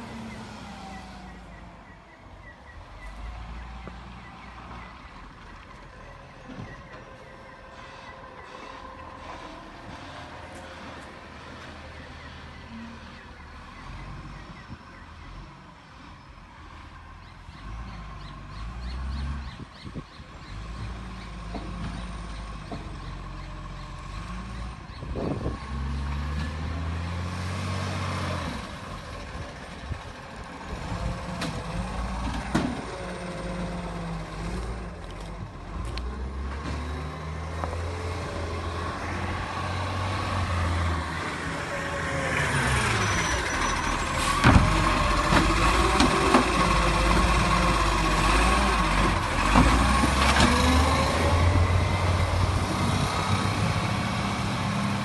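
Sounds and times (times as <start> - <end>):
diesel truck engine running: 16.7 - 55.0.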